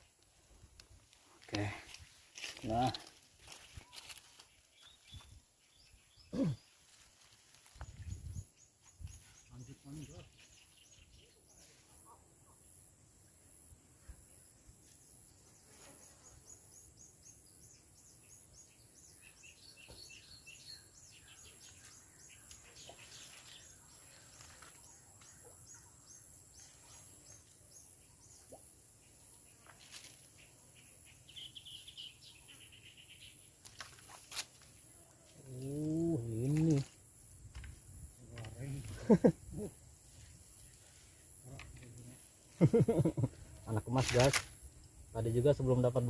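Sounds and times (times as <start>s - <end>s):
bird chirps and trills: 15.6s - 36.9s
sharp clicks: 44.0s - 44.8s.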